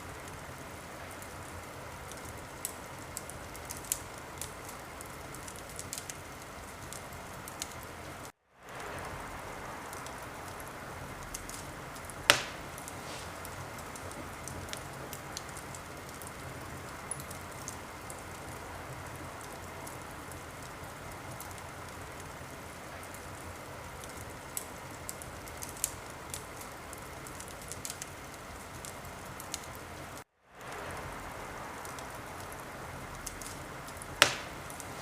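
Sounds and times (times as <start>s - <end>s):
wood fire crackling: 0.0s - 35.0s
loud sharp pop: 12.3s - 13.3s, 34.2s - 35.0s.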